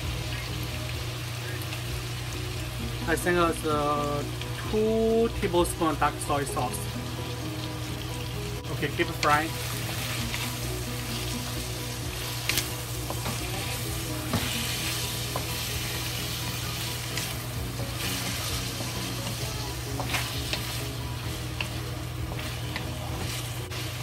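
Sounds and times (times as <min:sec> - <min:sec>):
food sizzling in oil: 0:00.0 - 0:24.0
wooden spatula stirring: 0:09.3 - 0:24.0.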